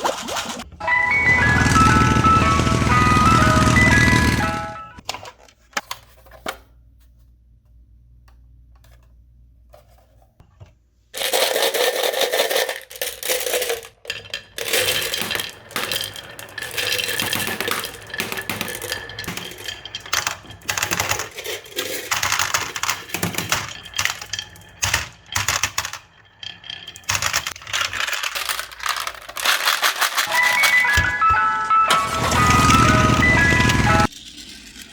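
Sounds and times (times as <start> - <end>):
marbles clacking down marble run: 11.2 - 34.9.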